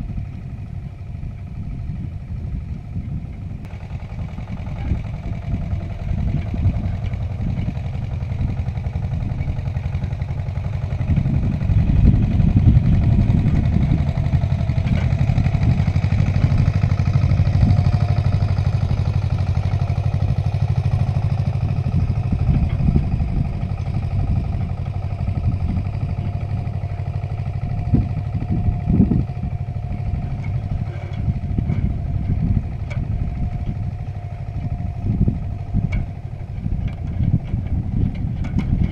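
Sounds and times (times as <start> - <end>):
tractor engine under load: 0.0 - 38.9
knocks and light clatter: 35.5 - 38.9.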